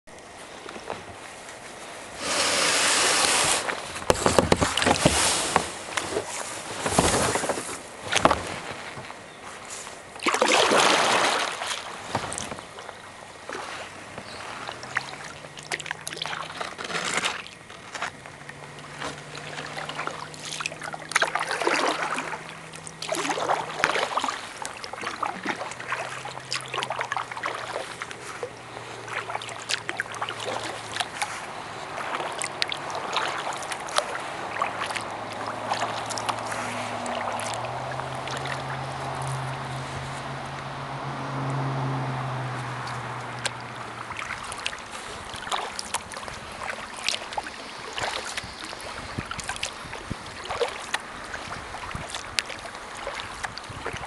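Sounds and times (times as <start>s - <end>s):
paddle splashing water: 0.1s - 54.0s
low hum: 12.1s - 46.8s.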